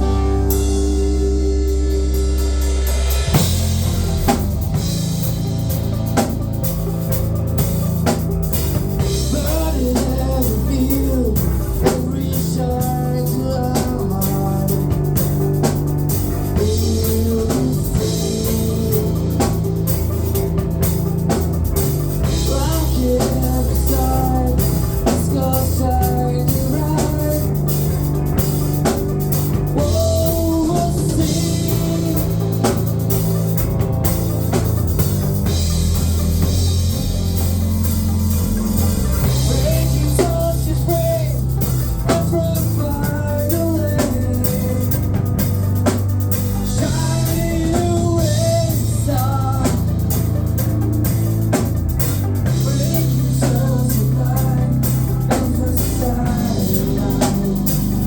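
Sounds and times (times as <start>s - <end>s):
person singing: 0.0s - 3.5s, 9.0s - 21.1s, 22.2s - 33.8s, 38.8s - 58.0s
bass guitar: 0.0s - 58.0s
drum kit: 0.0s - 58.0s
electric guitar: 0.0s - 58.0s.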